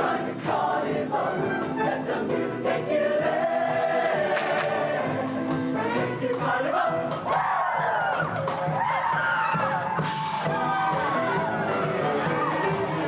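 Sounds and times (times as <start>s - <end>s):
choir singing: 0.0s - 8.2s, 10.9s - 13.0s
band accompaniment: 3.2s - 13.0s.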